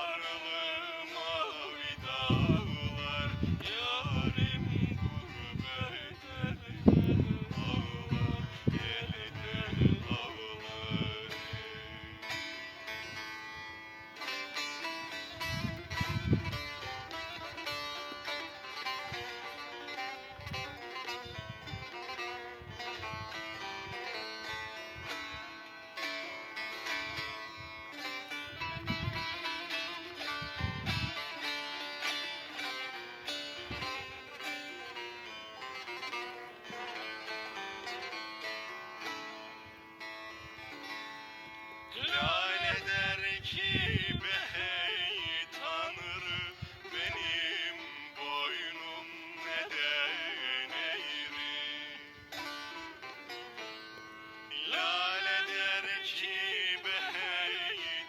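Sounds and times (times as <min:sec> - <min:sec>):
man singing ornamented melody: 0:00.0 - 0:13.2, 0:41.8 - 0:53.2, 0:54.4 - 0:58.0
plucked string instrument melody: 0:00.0 - 0:58.0.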